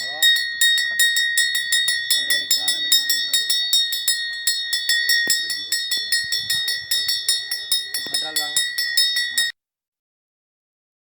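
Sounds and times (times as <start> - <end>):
hand bell ringing: 0.0 - 9.5.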